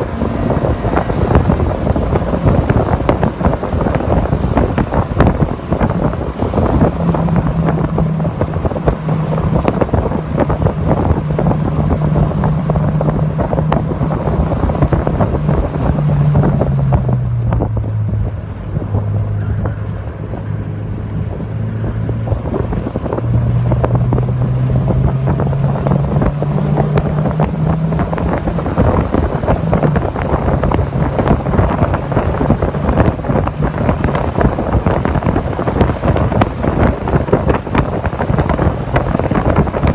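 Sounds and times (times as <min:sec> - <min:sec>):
car engine at speed: 0:00.0 - 0:39.9
wind rushing over microphone: 0:00.0 - 0:39.9.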